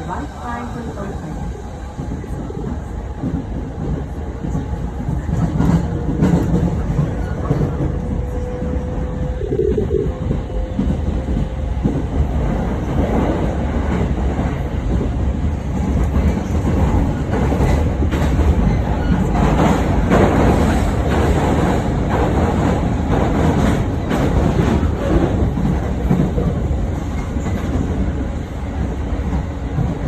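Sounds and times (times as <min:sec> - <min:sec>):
clickety-clack over rail joints: 0:00.0 - 0:09.4, 0:10.2 - 0:30.0
train wheels rumbling: 0:00.0 - 0:30.0.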